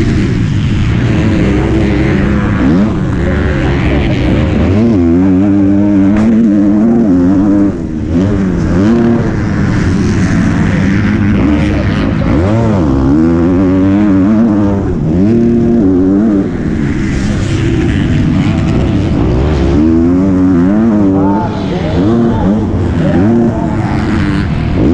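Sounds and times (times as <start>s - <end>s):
motocross bike engine revving: 0.0s - 24.9s.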